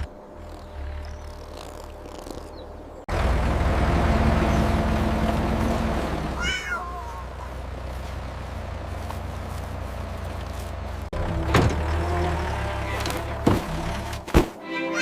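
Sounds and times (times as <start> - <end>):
heavy vehicle engine rumble: 2.7 - 14.3.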